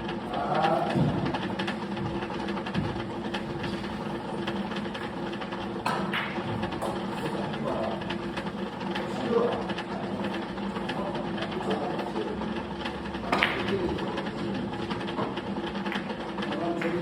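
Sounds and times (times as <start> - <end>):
steady mechanical hum: 0.0 - 17.0
billiard balls clicking: 0.6 - 12.1, 12.8 - 17.0.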